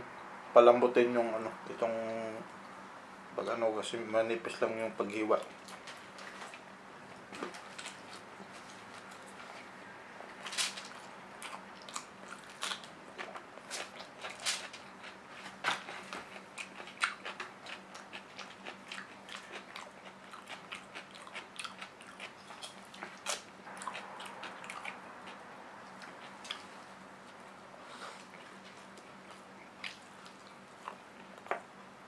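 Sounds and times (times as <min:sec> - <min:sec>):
person chewing crisp cucumber: 0:10.9 - 0:31.6.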